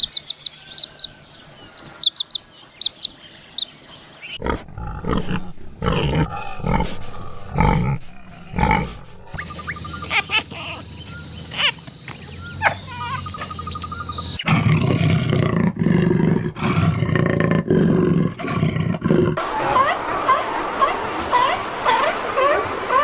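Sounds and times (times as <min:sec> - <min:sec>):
birds chirping: 0:00.0 - 0:15.1
insects trilling: 0:09.4 - 0:14.4.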